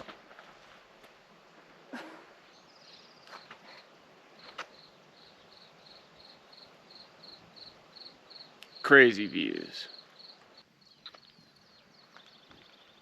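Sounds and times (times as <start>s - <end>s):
footsteps crunching on rocks: 0.0s - 1.8s
insect chirping: 2.4s - 13.0s.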